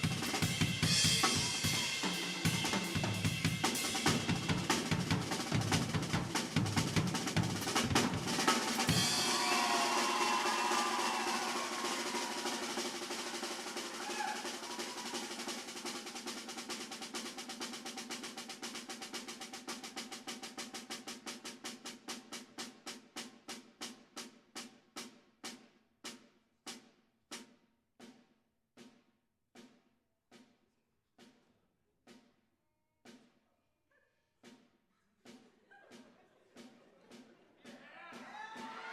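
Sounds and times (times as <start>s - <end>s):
drum kit played hard: 0.0s - 24.4s
drum roll: 0.0s - 26.8s.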